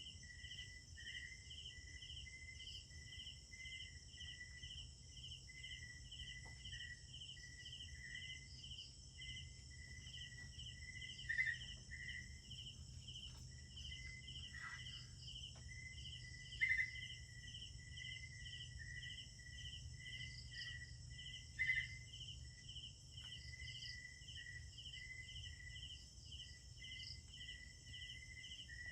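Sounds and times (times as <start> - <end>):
insects trilling: 0.0 - 28.9
loud cricket chirps: 0.0 - 28.9
pulsing insect call: 0.0 - 28.9.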